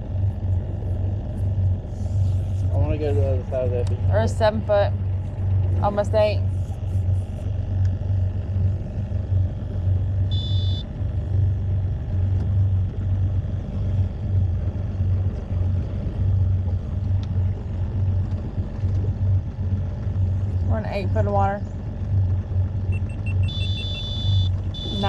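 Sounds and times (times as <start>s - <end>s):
outboard engine running: 0.0s - 25.0s
high electronic beep: 10.3s - 10.8s, 22.9s - 25.0s.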